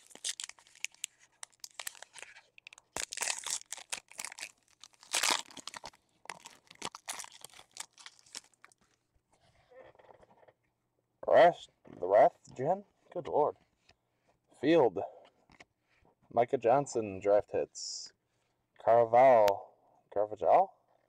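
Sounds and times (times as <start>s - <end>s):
cards being handled: 0.0s - 3.9s
foil wrapper tearing: 0.0s - 8.8s
foil wrapper crinkling: 0.0s - 8.9s.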